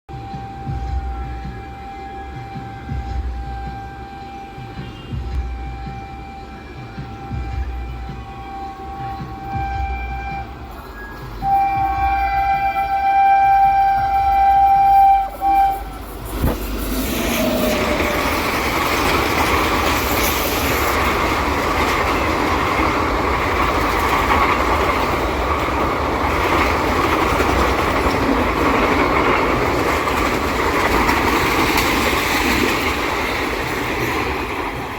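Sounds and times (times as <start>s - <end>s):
locomotive horn: 0.1s - 23.2s
train passing at speed: 0.1s - 34.9s.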